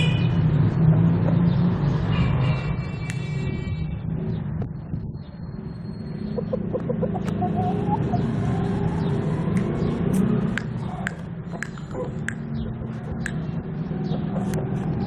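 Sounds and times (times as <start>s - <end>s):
rooster clucking: 2.0s - 3.8s, 6.2s - 8.2s, 10.2s - 15.0s
low engine rumble: 2.9s - 15.0s.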